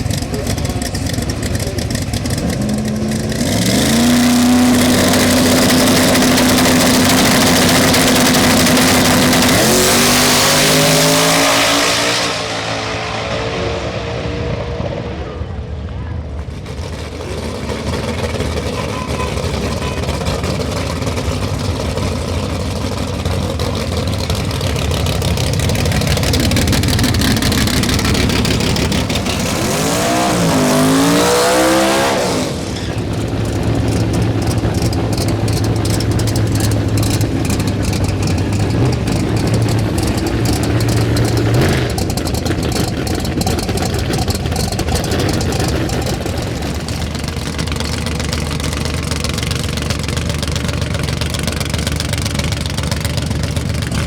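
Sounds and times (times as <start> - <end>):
engine idling loudly: 0.0 - 11.8, 15.2 - 54.0
racing engine at full throttle: 0.0 - 54.0.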